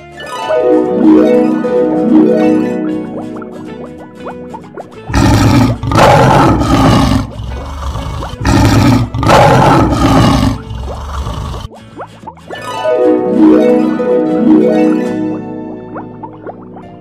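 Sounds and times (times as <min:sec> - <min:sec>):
lion roaring: 0:05.1 - 0:11.7.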